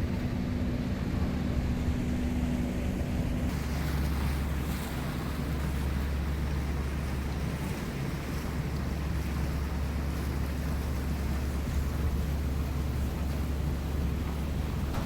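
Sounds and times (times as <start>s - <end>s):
boat engine drone: 0.0s - 15.0s
water rushing past hull: 0.0s - 15.0s.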